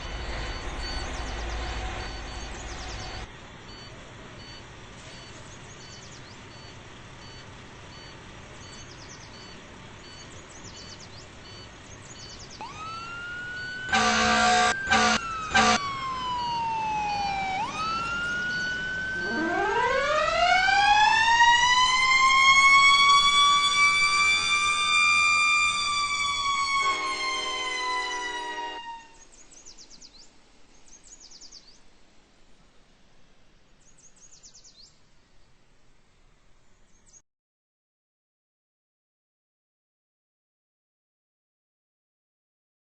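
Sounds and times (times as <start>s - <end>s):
siren winding up: 12.6s - 28.4s
electronic siren wailing: 12.6s - 29.2s
air horn blasts: 13.8s - 15.9s, 23.7s - 24.9s, 26.1s - 29.2s.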